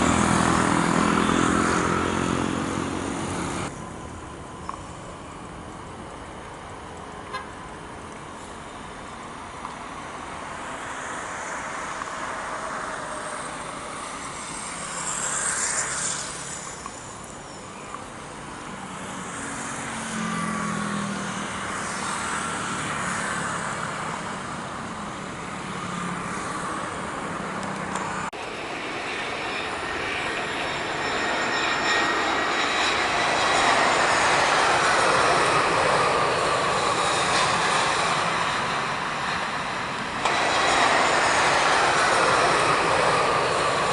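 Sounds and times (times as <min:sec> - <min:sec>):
jet engines roaring and whining: 0:00.0 - 0:43.9.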